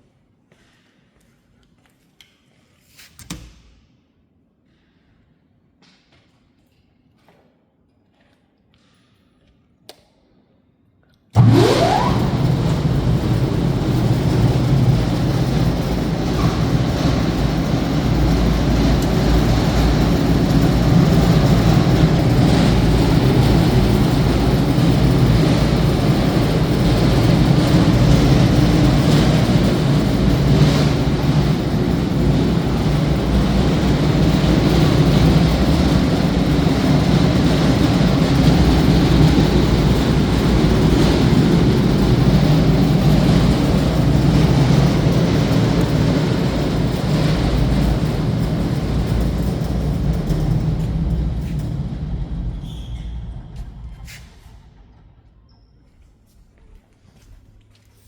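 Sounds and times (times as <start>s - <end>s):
wood grinder motor running: 11.4s - 36.5s
rising motor whine: 11.4s - 55.0s.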